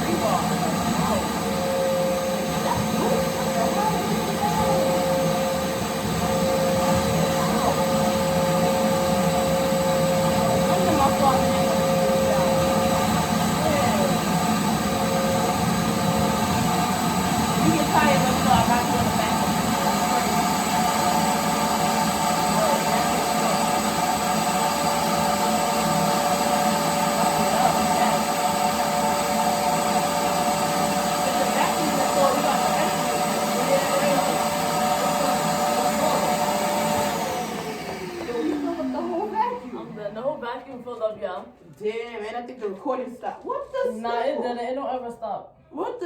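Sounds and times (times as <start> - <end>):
vacuum sucking up dirt and mud: 0.0 - 40.3
vacuum cleaner whining: 0.0 - 41.6.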